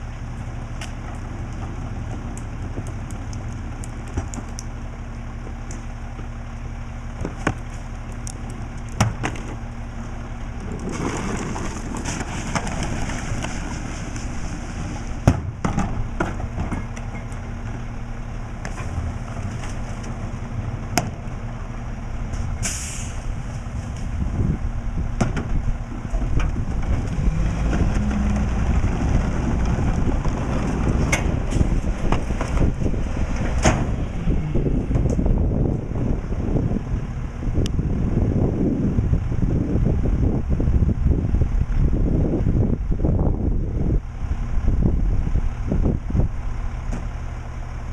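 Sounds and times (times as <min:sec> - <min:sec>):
truck engine drone: 0:00.0 - 0:47.9
air hiss: 0:22.6 - 0:23.3.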